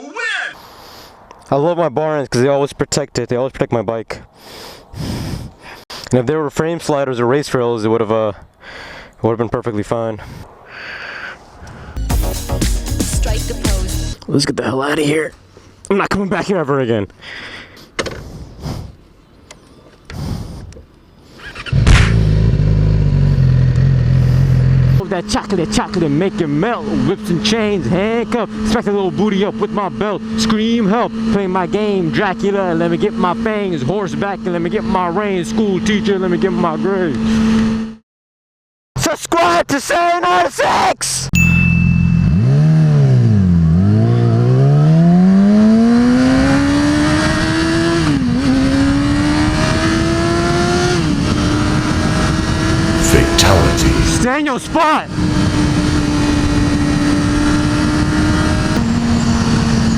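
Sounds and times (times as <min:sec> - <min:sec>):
motorcycle engine revving: 0:21.5 - 0:33.4, 0:42.0 - 0:54.3, 0:55.1 - 0:59.9.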